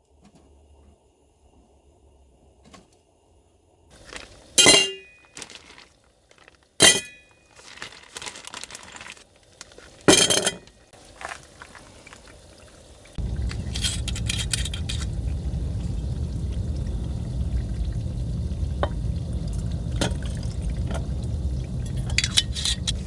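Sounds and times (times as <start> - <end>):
rustling: 3.9 - 10.1
tableware clinking: 4.6 - 5.2, 10.1 - 10.7
utensils clattering: 4.6 - 5.8, 10.1 - 10.7, 13.5 - 15.2, 22.0 - 23.0.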